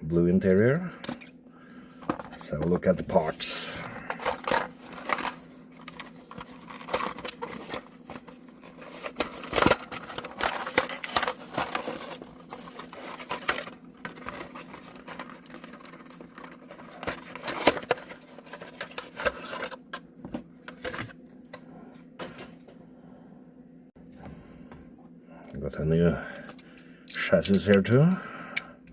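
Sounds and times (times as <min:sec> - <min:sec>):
packaging rustling and crinkling: 0:03.1 - 0:20.0.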